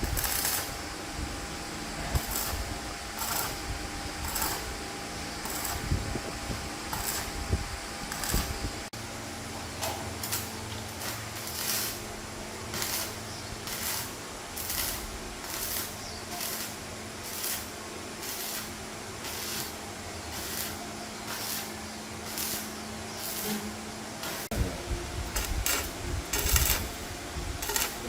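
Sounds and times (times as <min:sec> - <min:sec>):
steady low hum: 0:00.0 - 0:28.0
rhythmic rasping strokes: 0:20.3 - 0:28.0.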